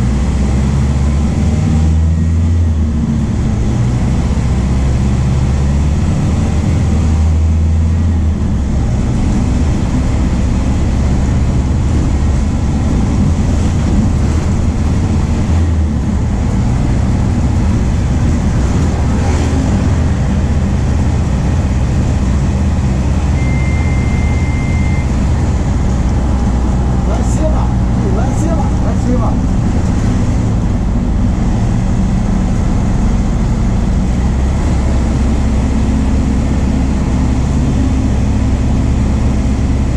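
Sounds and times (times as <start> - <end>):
bus diesel engine humming: 0.0 - 39.9
short steady beep: 23.3 - 25.2.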